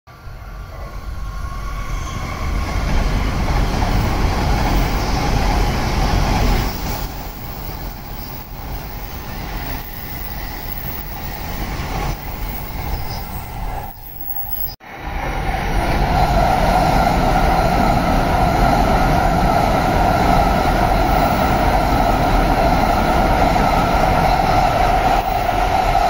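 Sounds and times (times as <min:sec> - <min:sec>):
high-speed train rushing past: 0:00.1 - 0:26.0.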